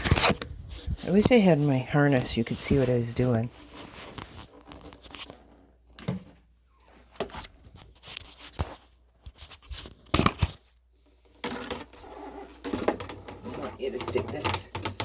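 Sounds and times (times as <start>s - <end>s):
objects knocking and clicking: 14.0s - 15.0s.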